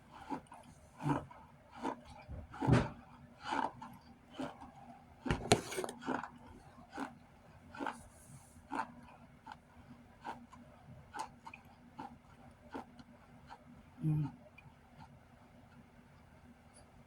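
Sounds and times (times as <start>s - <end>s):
crunchy chewing: 3.4s - 4.8s, 5.5s - 13.6s.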